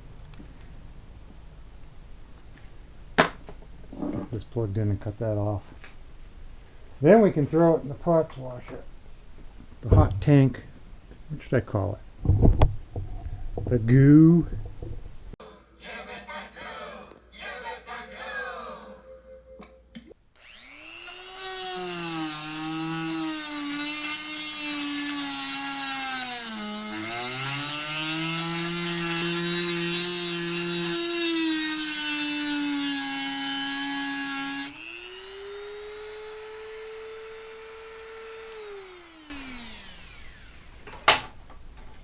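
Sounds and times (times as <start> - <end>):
rotary tool cutting metal: 20.4 - 41.2.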